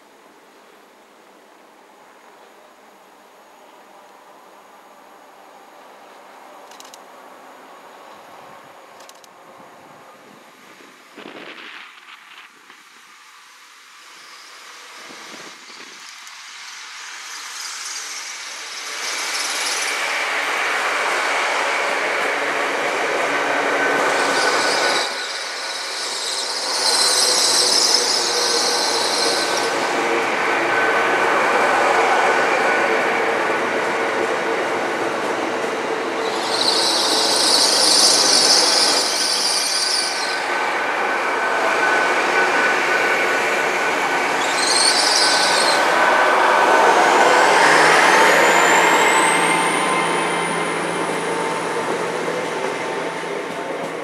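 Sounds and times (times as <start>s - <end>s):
train running past rumbling: 9.4s - 54.0s
high-pitched wheel squeal: 18.7s - 31.2s, 36.2s - 53.3s.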